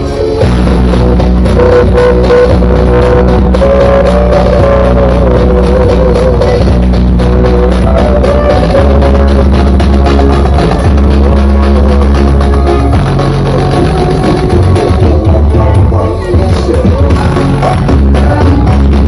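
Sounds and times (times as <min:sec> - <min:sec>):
loud music with heavy bass: 0:00.0 - 0:19.0.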